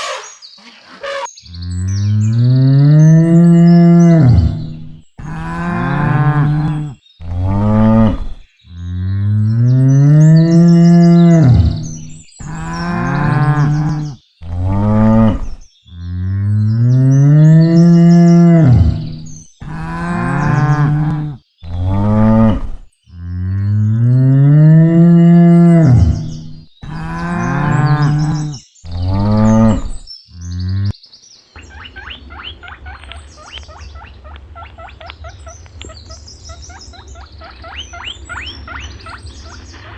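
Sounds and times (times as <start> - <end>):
high squeaky chattering: 0.0 - 1.4
cattle mooing: 1.0 - 8.4, 10.1 - 16.4, 17.3 - 30.9.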